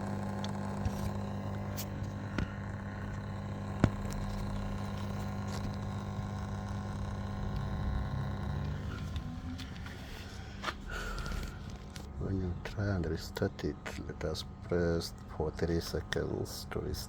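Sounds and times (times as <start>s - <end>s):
drain pump humming: 0.0s - 17.0s.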